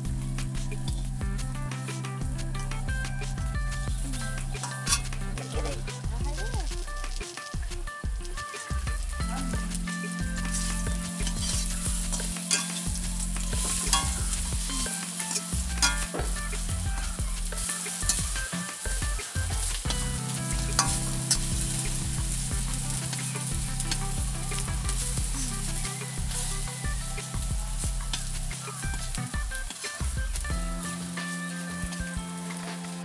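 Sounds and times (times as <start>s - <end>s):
food sizzling in oil: 0.0s - 33.0s
metal spatula scraping pan: 9.7s - 26.9s.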